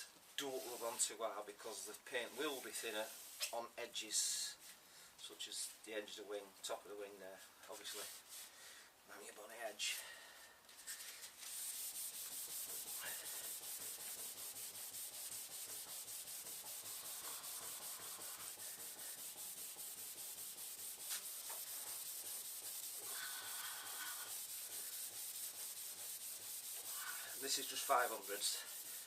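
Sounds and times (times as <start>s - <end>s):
hand wet-sanding car paint: 10.8s - 29.0s.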